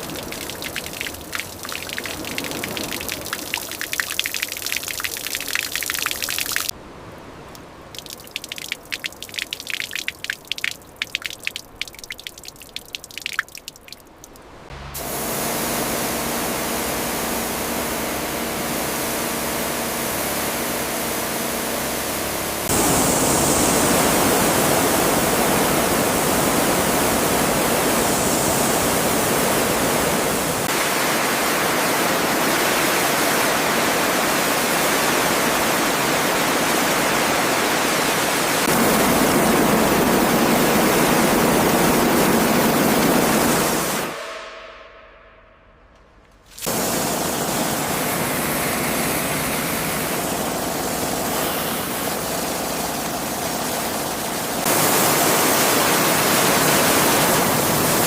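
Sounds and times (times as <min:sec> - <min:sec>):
water dripping and trickling: 0:00.0 - 0:06.7, 0:07.4 - 0:14.8
water rushing: 0:00.0 - 0:45.0, 0:46.5 - 0:58.0.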